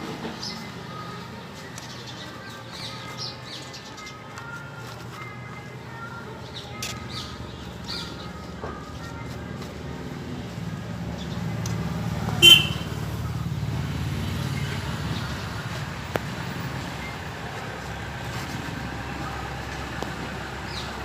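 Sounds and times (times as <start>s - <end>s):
road traffic rumbling: 0.0s - 21.0s
vehicle horn toot: 12.4s - 13.0s.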